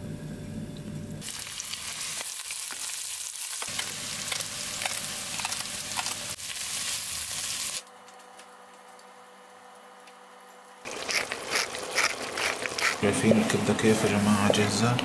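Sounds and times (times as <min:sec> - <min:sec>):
onions sizzling in a frying pan: 0:01.2 - 0:07.8
wooden spoon stirring: 0:10.9 - 0:15.0.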